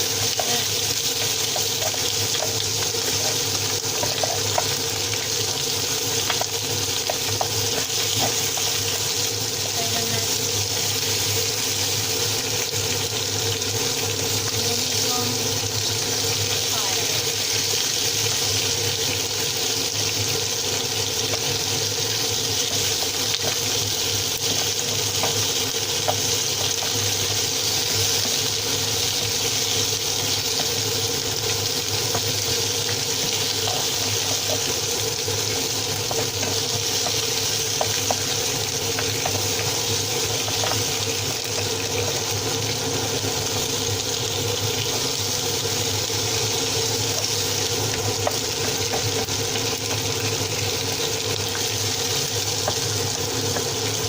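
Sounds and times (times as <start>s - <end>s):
meat sizzling in a pan: 0.0s - 54.0s.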